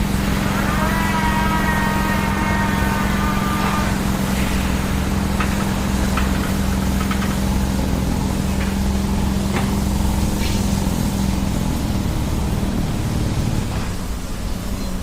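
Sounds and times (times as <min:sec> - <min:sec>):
high whine: 0:00.0 - 0:14.4
bulldozer diesel engine running: 0:00.0 - 0:15.0.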